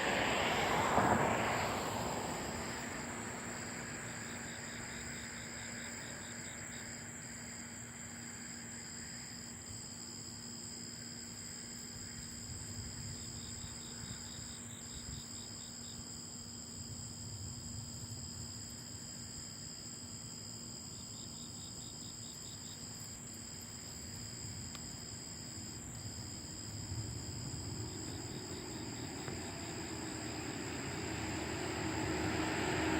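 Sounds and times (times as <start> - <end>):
crickets trilling: 0.0 - 32.9
pulsed cricket chirping: 0.1 - 32.9
low rumble: 26.3 - 32.9
rush of noise: 26.6 - 32.9.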